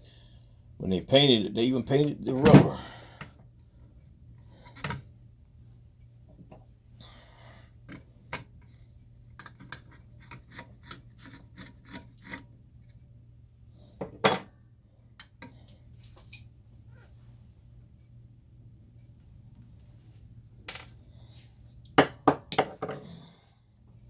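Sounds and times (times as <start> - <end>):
small clicks and scrapes: 7.9 - 13.0.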